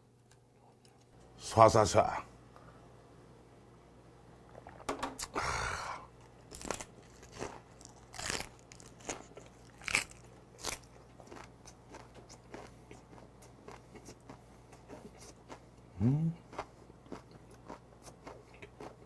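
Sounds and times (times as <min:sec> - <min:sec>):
close chewing crunches: 0:06.5 - 0:15.8, 0:16.4 - 0:19.0.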